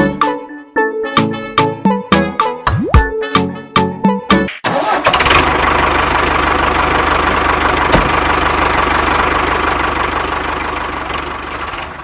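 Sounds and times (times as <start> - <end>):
engine running with fast pulse: 4.8 - 12.0.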